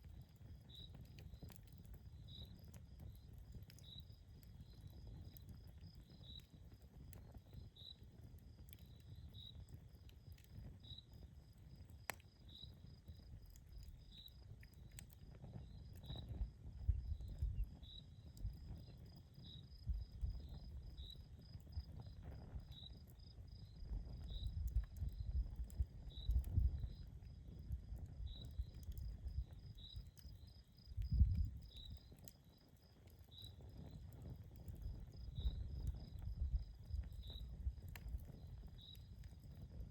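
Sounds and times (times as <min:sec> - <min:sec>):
campfire crackling: 0:00.0 - 0:39.9
crickets chirping: 0:26.1 - 0:34.0, 0:34.8 - 0:37.4.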